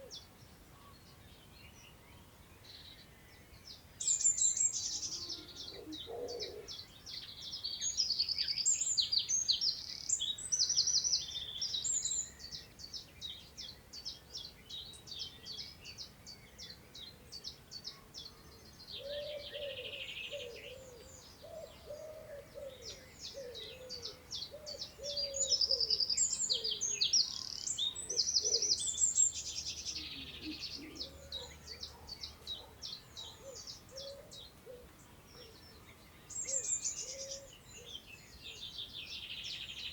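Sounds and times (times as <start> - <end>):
songbird song phrases with trills: 0.0 - 39.9.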